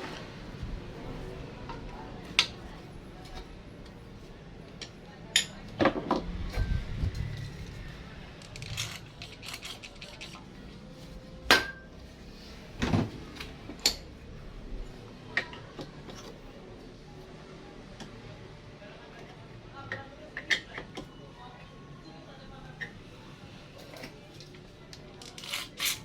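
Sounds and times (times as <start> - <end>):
hard objects clinking: 8.4 - 10.5.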